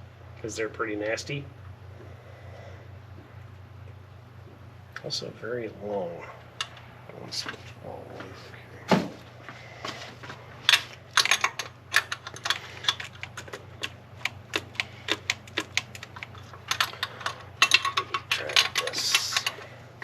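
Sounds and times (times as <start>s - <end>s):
sharp clicks of hand tools: 10.7s - 19.7s.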